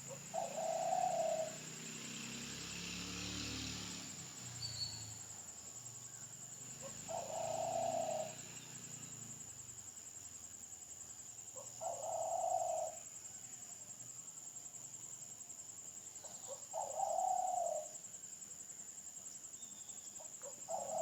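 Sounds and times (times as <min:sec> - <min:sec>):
bird calling: 0:00.0 - 0:01.6, 0:06.8 - 0:08.5, 0:11.6 - 0:13.1, 0:16.2 - 0:17.9, 0:19.7 - 0:21.0.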